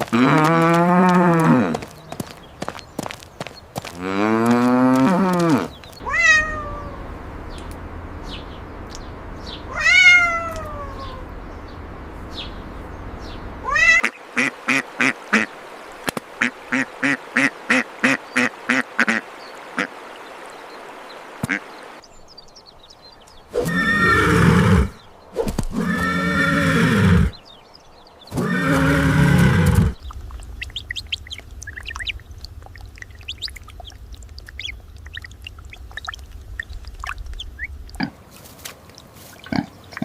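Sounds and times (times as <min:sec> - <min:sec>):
cow mooing: 0:04.0 - 0:05.7
cat meowing: 0:06.0 - 0:07.0, 0:09.7 - 0:11.3, 0:13.6 - 0:14.0.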